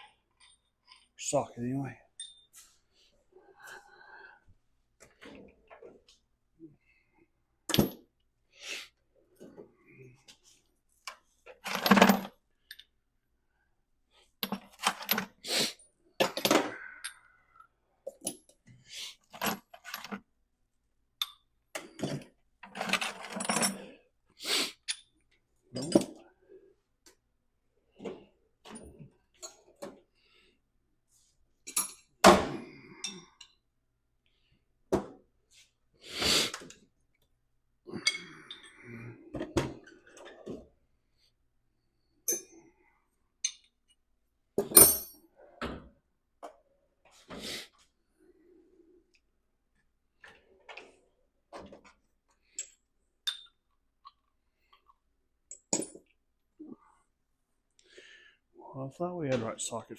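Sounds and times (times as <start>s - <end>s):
steel tools clinking and clattering: 2.2s - 2.6s, 22.7s - 23.9s, 52.6s - 53.6s.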